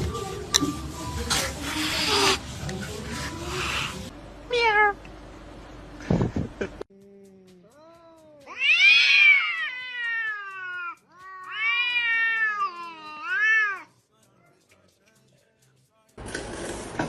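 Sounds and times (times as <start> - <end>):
cat meowing: 4.5 - 5.0, 8.5 - 13.9.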